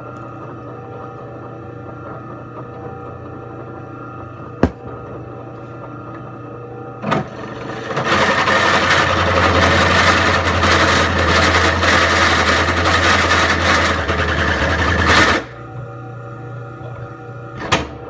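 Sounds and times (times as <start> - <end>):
drill grinding through metal: 7.0 - 15.6.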